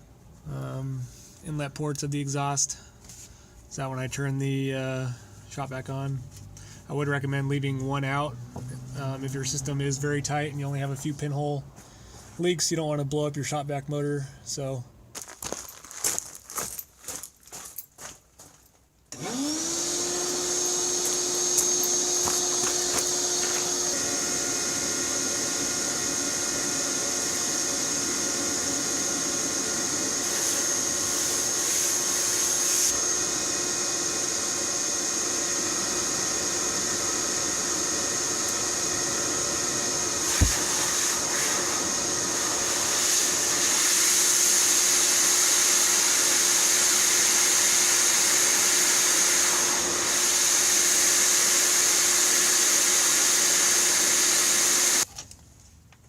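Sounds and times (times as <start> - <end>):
shop vac motor whine: 19.1 - 55.1.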